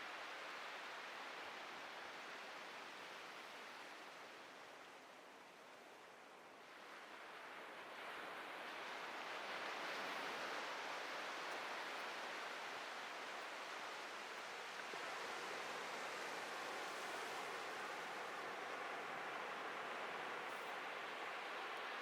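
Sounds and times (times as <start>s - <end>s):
ocean waves breaking on beach: 6.7s - 22.0s.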